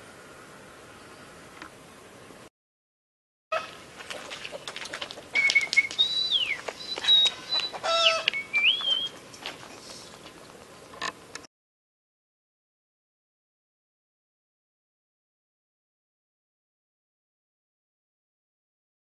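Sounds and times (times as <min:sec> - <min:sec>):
birds whistling and calling: 0:05.3 - 0:09.2.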